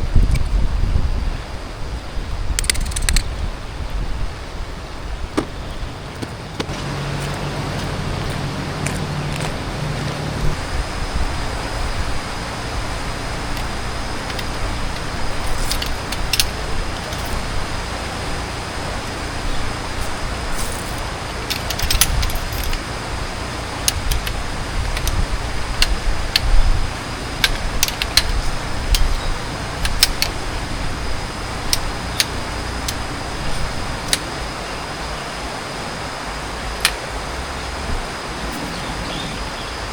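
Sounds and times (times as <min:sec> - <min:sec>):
steady background hiss: 0:00.0 - 0:39.9
light metallic clinks and rattles: 0:11.8 - 0:26.6.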